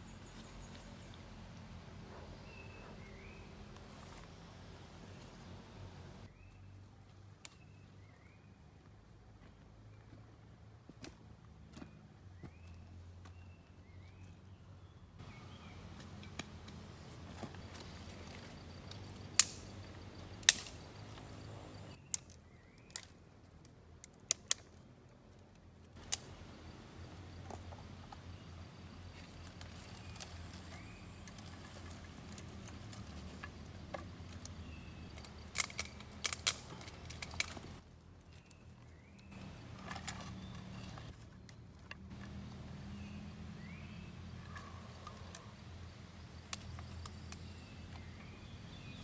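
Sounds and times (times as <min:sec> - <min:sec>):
campfire crackling and popping: 0:18.5 - 0:19.8, 0:20.4 - 0:21.1, 0:34.3 - 0:37.8.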